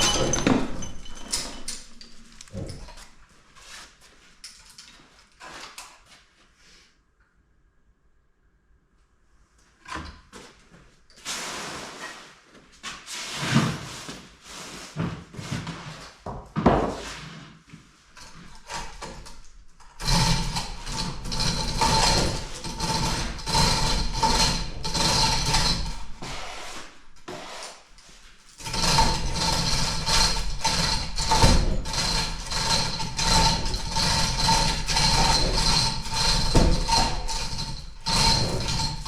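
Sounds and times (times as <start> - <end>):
power tool running with clatter: 20.0 - 26.1, 28.6 - 39.0.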